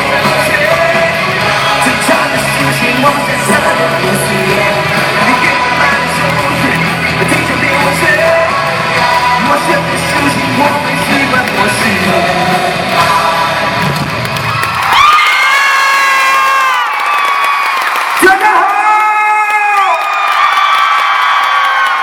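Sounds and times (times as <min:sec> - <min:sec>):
person singing: 0:00.0 - 0:14.0
live pop-rock band: 0:00.0 - 0:16.4
arena crowd yelling: 0:14.3 - 0:22.0.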